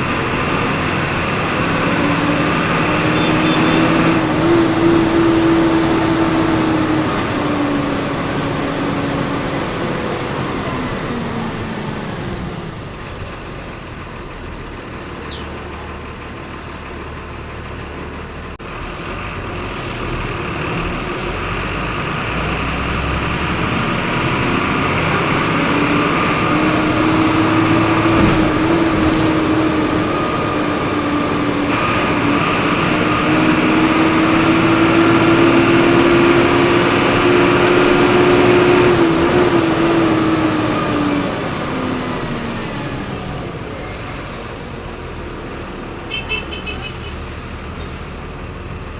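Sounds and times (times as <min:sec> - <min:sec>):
bus engine running: 0:00.0 - 0:48.9.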